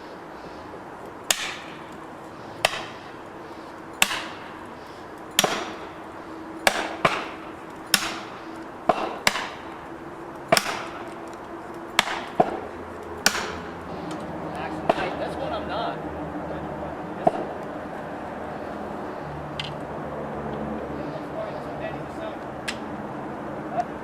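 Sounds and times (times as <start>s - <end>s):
chopping blows on wood: 1.3s - 3.2s, 4.0s - 4.8s, 5.4s - 6.0s, 6.6s - 9.9s, 10.5s - 11.4s, 12.0s - 14.2s, 14.8s - 15.2s.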